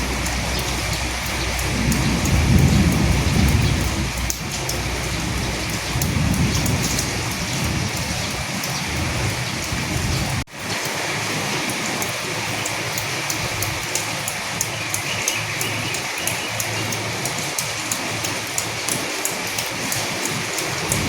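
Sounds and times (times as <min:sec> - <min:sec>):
distant thunder rumbles: 0:00.0 - 0:10.5, 0:20.6 - 0:21.0
heavy rain falling: 0:00.0 - 0:21.0
raindrops ticking: 0:00.0 - 0:21.0.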